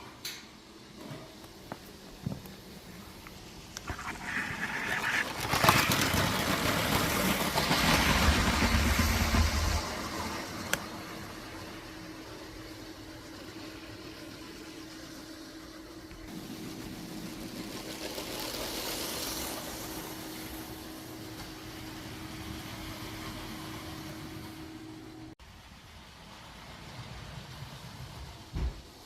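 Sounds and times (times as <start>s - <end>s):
toy train motor hum: 3.2s - 21.2s
wheels rattling on plastic track: 3.8s - 11.0s, 16.3s - 20.7s.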